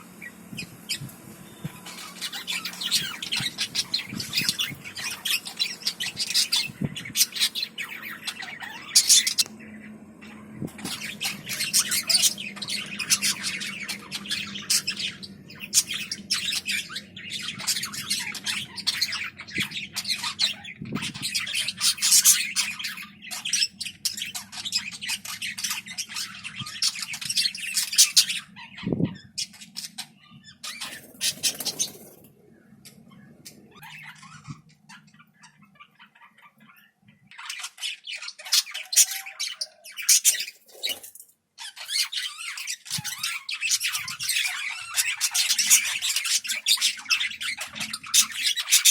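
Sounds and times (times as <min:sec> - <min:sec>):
low steady hum: 0:00.0 - 0:35.0
budgies chattering and squawking: 0:00.0 - 0:48.9.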